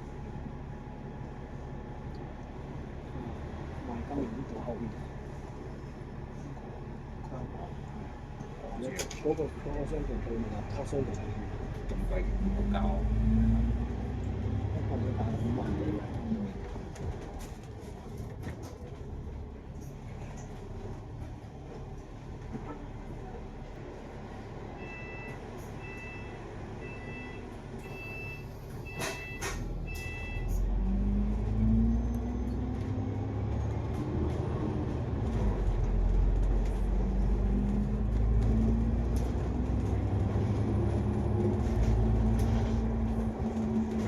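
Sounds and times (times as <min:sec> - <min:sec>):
bus engine pulling away: 0:00.0 - 0:44.0
short electronic beeps: 0:24.8 - 0:30.5.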